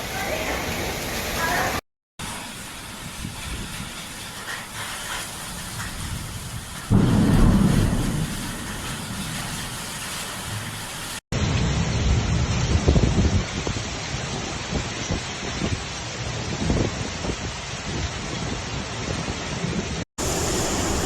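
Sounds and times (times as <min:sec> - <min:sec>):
heavy rain hissing: 0:00.0 - 0:11.5, 0:20.2 - 0:21.0
thunderclap rumbling: 0:05.3 - 0:13.5.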